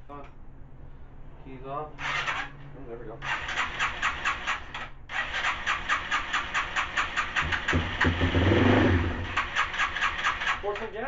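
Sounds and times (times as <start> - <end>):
motorcycle engine cranking: 2.0 - 2.5, 3.2 - 10.9
engine briefly running: 5.2 - 10.5.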